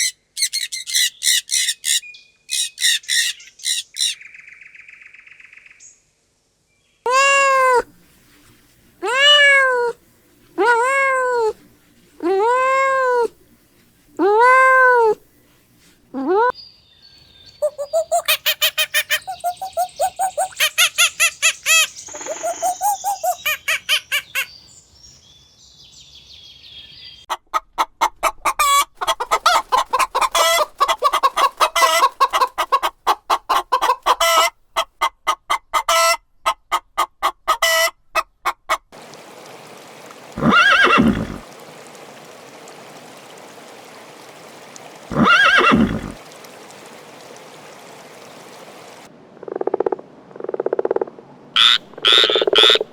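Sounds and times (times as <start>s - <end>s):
background hiss: 3.4s - 27.2s, 39.0s - 52.9s
chickens clucking: 17.6s - 24.5s, 27.3s - 38.9s.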